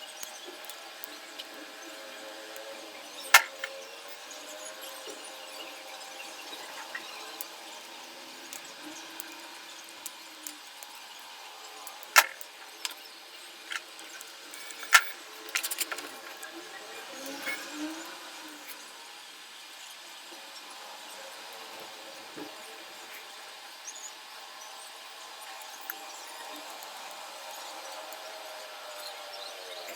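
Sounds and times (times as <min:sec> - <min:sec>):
clicks of small hard objects: 0:02.5 - 0:04.2, 0:11.8 - 0:16.5.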